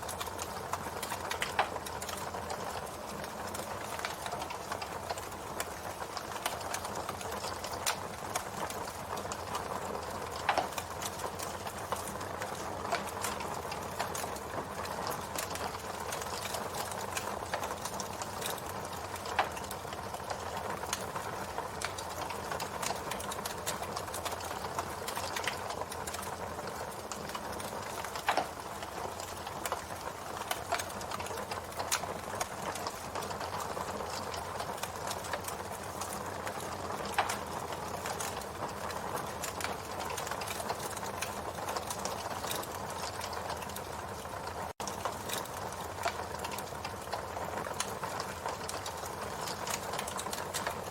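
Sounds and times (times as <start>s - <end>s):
campfire crackling: 0.0s - 50.9s
loud pops from fire: 27.0s - 38.5s, 44.8s - 47.1s.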